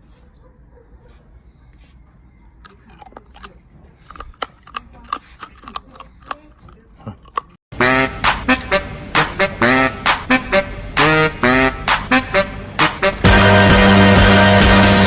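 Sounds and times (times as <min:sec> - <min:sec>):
eating sounds with utensil clicks: 0:02.6 - 0:07.6.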